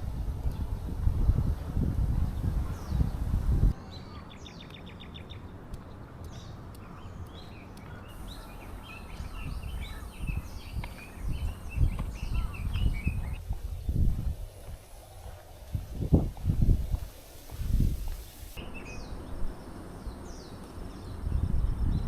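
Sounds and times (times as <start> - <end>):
small birds chirping: 0.1 - 22.0
rapid ticking bird notes: 4.6 - 13.5.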